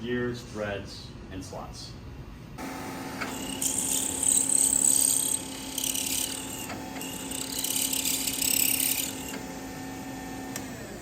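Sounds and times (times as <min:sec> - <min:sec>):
milling machine motor hum: 0:02.6 - 0:11.0.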